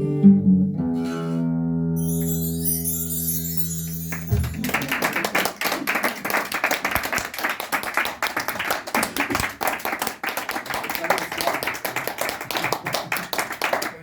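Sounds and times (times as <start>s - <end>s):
audience applause: 4.1s - 14.0s.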